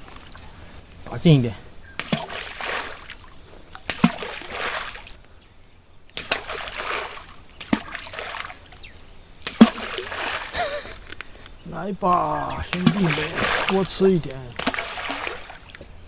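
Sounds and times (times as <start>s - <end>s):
bait splashing into stream: 2.0s - 5.2s, 6.1s - 10.8s, 12.1s - 15.9s.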